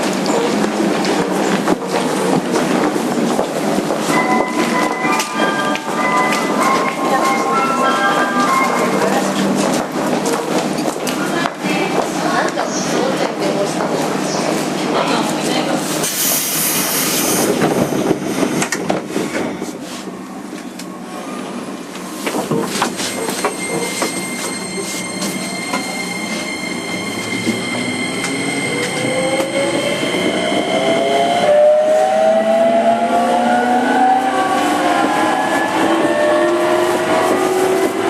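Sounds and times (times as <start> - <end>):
steady high tone: 4.1 - 9.5, 23.1 - 37.8.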